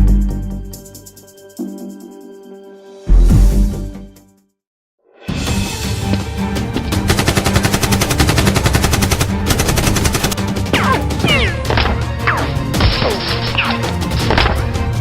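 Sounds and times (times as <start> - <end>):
background music: 0.0 - 15.0
rapid automatic gunfire: 7.1 - 10.4.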